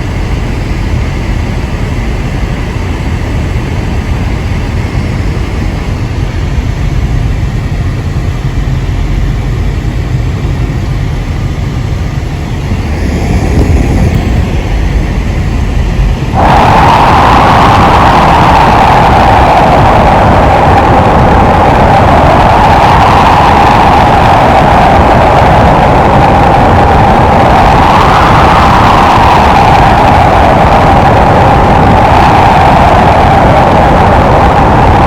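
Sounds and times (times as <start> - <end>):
wind buffeting microphone: 0.0 - 35.0
loud high hiss: 11.1 - 33.7.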